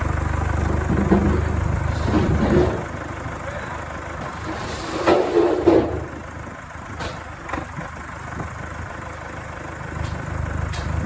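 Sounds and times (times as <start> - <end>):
engine clatter: 0.0 - 11.0
engine idling: 0.0 - 11.0.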